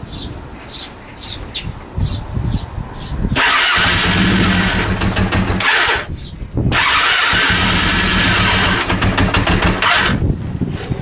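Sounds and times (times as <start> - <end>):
motorcycle engine starting and running: 3.4 - 10.4
low uneven engine thuds: 3.4 - 10.5.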